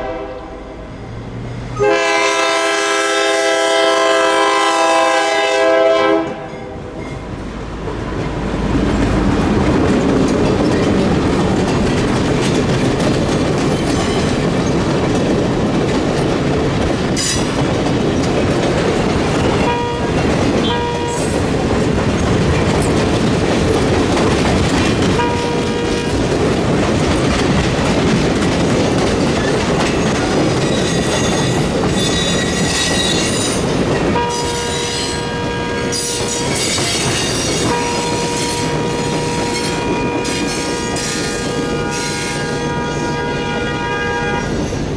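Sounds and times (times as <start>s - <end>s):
passenger train rumbling past: 0.0s - 44.9s
wheels clattering over rail joints: 7.4s - 35.2s.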